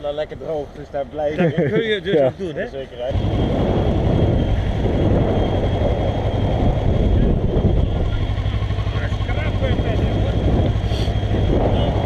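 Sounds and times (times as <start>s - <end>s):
motorcycle engine running: 3.1s - 12.0s
wind rush on microphone: 3.1s - 12.0s.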